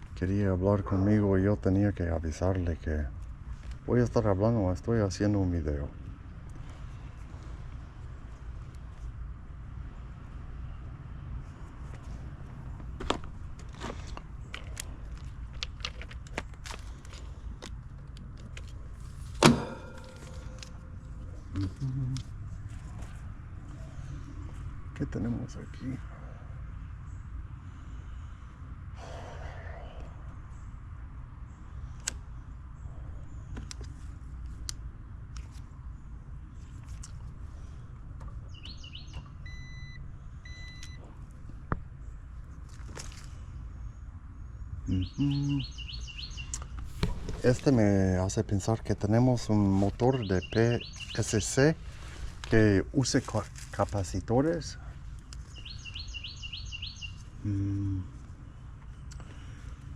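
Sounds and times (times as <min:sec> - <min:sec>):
steady low rumble: 0:00.0 - 0:33.5, 0:46.5 - 0:50.2
low steady hum: 0:00.0 - 0:45.6
loud knock: 0:19.4 - 0:20.3, 0:46.9 - 0:47.8
bird chirp: 0:38.4 - 0:41.0, 0:43.6 - 0:52.2, 0:54.7 - 0:58.2
short electronic beeps: 0:39.5 - 0:41.0.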